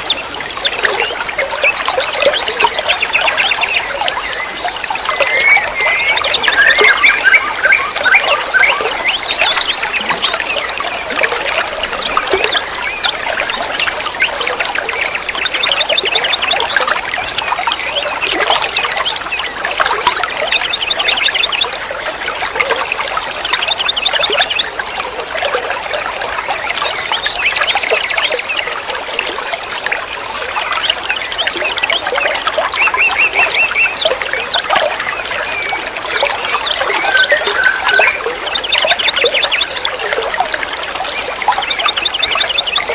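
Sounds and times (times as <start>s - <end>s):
songbird chirping and trilling: 0.0s - 21.8s, 30.6s - 42.9s.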